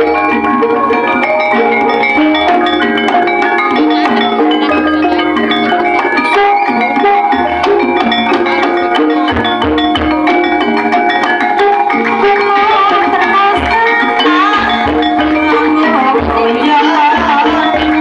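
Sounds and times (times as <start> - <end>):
ringing metallophone notes: 0.0 - 18.0
sliding melodic line: 0.0 - 18.0.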